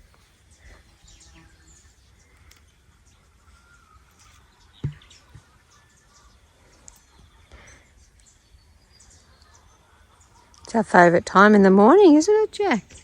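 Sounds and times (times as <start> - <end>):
small birds chirping: 0.0 - 13.0
sharp knock: 4.8 - 5.1.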